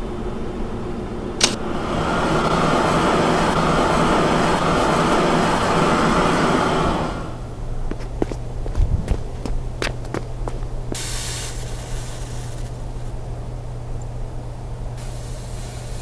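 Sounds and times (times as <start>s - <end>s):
sharp click: 1.4s - 1.6s
blowtorch flame hissing: 1.4s - 7.4s, 11.0s - 13.1s, 15.0s - 16.0s.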